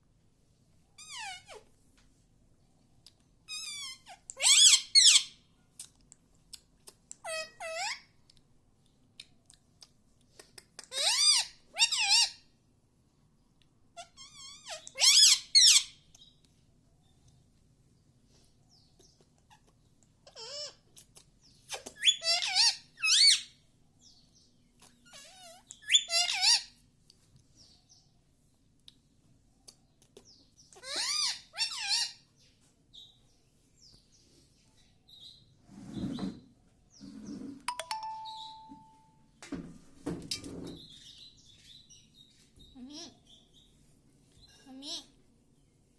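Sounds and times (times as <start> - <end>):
parakeet high-pitched calls: 1.0 - 1.6, 3.5 - 5.4, 7.2 - 8.1, 10.9 - 12.4, 14.0 - 16.0, 20.3 - 20.8, 22.0 - 23.6, 25.0 - 26.7, 30.7 - 32.4, 37.8 - 39.0
soft high chirps: 37.7 - 39.3.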